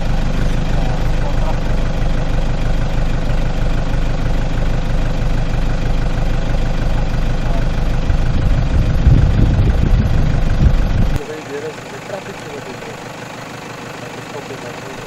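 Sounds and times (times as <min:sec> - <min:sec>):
engine running at low revs: 0:00.0 - 0:15.0
low thuds: 0:07.9 - 0:11.2.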